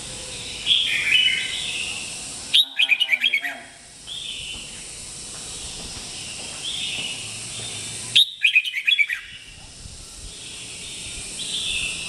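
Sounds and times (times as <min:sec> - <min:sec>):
steady hiss: 0:00.0 - 0:12.0
bird calling: 0:00.1 - 0:09.6.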